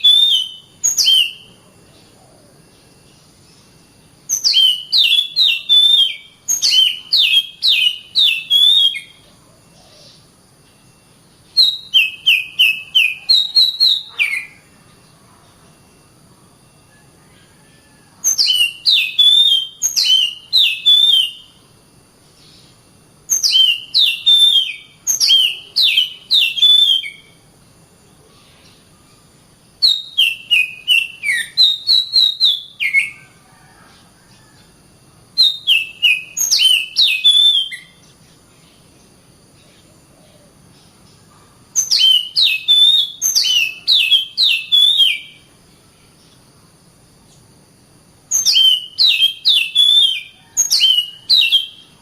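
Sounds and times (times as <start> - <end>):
bird singing whistled notes: 0.0 - 14.9, 15.7 - 21.6, 22.4 - 27.4, 29.8 - 33.8, 35.4 - 38.8, 41.7 - 45.5, 48.3 - 52.0.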